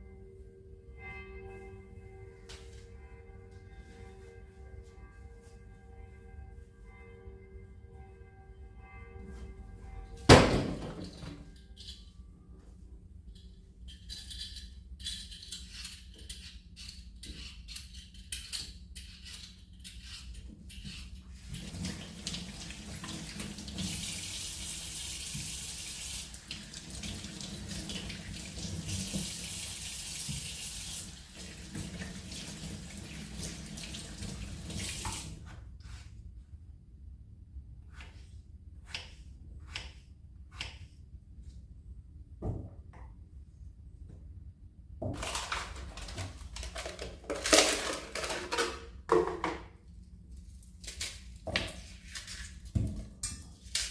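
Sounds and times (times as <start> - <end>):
tap water running into sink: 21.6 - 35.4.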